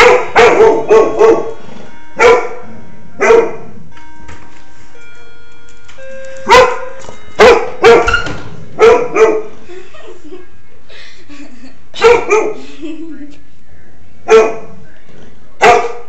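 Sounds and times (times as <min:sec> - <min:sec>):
dog barking loudly: 0:00.0 - 0:01.6, 0:03.2 - 0:03.6, 0:06.5 - 0:08.1, 0:08.8 - 0:09.6, 0:12.0 - 0:12.6, 0:14.3 - 0:14.7, 0:15.6 - 0:16.0.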